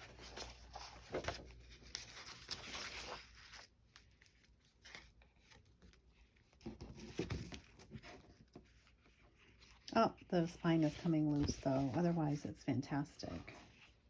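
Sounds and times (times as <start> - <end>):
paper pages rustling: 0.0 - 14.0.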